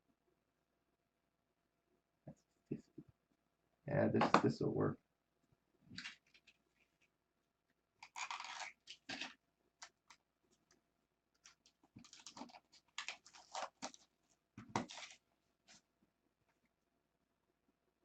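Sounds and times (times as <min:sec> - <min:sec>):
cards and plastic holder handled: 0:11.4 - 0:15.8.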